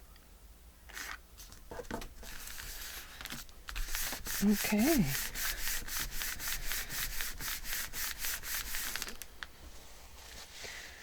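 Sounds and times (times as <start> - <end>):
rubbing strokes on paper: 2.2 - 9.1.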